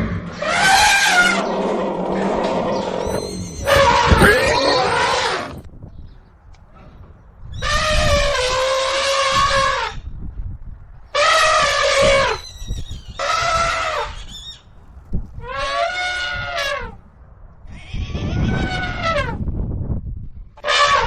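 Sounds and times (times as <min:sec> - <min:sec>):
animal crying: 0:02.8 - 0:05.7.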